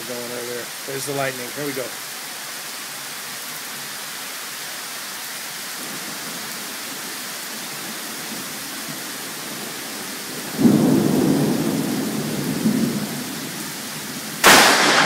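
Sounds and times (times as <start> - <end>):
steady rain: 0.0 - 15.0
loud thunderclap: 10.6 - 13.2, 14.4 - 15.0.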